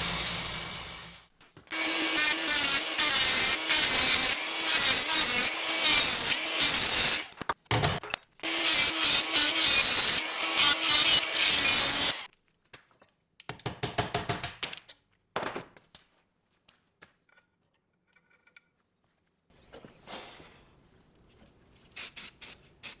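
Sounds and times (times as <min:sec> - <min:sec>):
tool rubbing abrasively: 0:00.0 - 0:07.3, 0:08.4 - 0:12.3.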